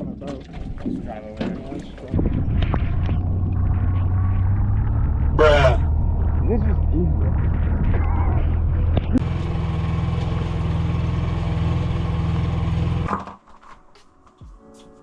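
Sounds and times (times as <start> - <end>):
boat engine running: 0.0 - 13.1
quiet music: 13.3 - 15.0.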